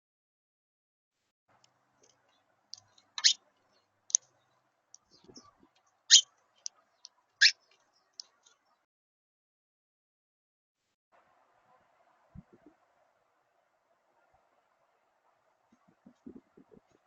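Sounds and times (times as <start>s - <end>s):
birds making sharp high clicks: 1.6s - 8.8s.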